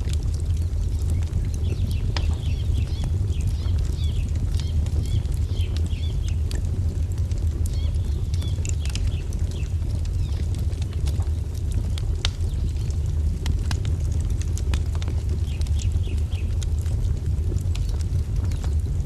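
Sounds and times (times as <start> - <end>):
low rumble: 0.0 - 19.0
wood fire crackling and popping: 0.0 - 19.0
small birds chirping: 0.5 - 6.6, 7.6 - 10.8, 15.3 - 16.6.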